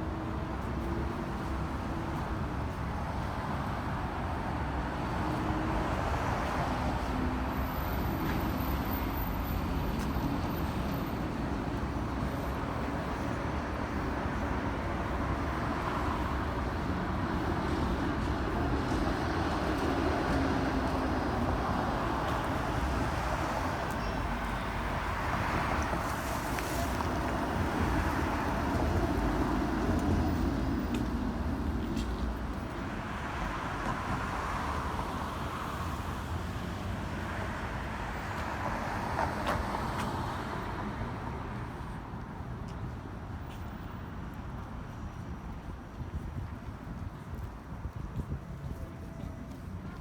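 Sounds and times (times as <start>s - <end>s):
street traffic: 0.0s - 50.0s
wind rumbling on microphone: 45.2s - 50.0s.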